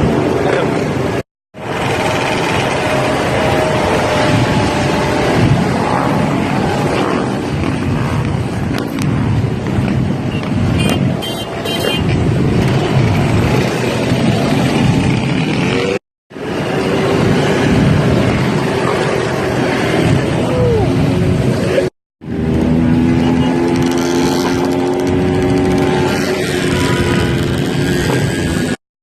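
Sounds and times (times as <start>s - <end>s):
motorcycle engines running: 0.0s - 28.8s.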